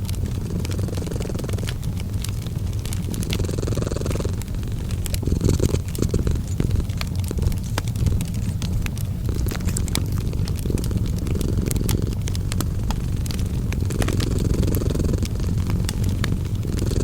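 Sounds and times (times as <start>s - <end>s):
cat purring: 0.0s - 17.0s
fireplace fire crackling: 0.0s - 17.0s.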